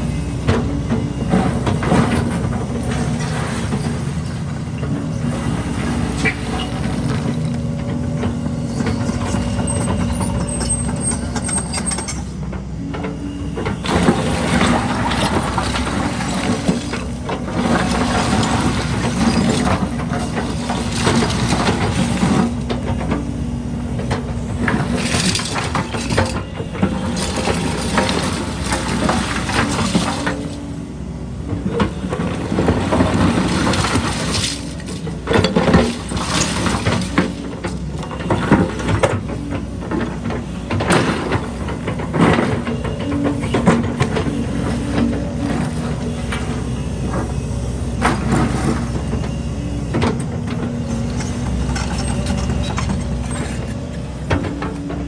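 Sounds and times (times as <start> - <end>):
excavator diesel engine running: 0.0 - 55.0
concrete rubble clattering and scraping: 13.8 - 23.3, 23.9 - 30.6, 31.6 - 46.6, 50.0 - 55.0.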